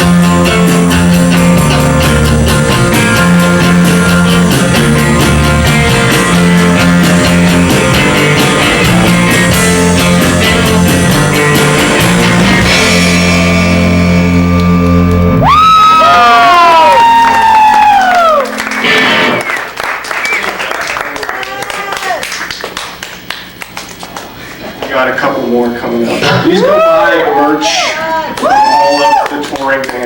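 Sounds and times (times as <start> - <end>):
drum kit: 0.0 - 19.8
live rock band playing: 0.0 - 20.7
ringing final chord: 17.8 - 19.5.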